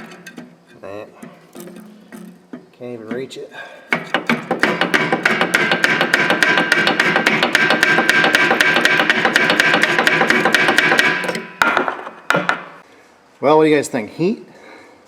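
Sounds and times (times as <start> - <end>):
hammer striking steel: 3.9 - 12.8.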